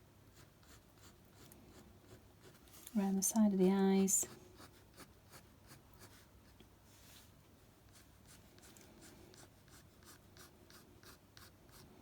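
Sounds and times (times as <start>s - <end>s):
pen scratching on paper: 8.6s - 11.8s.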